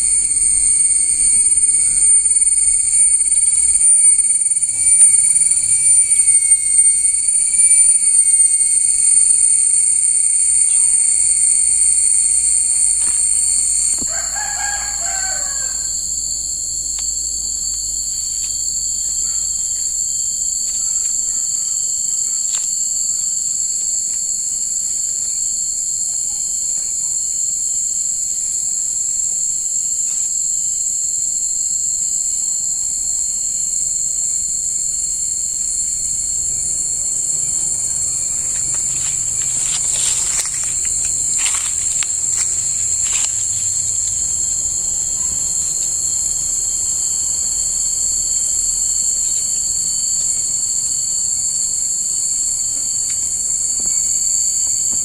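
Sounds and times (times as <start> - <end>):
insects trilling: 0.0 - 55.0
rooster crowing: 11.8 - 16.4, 36.0 - 44.9.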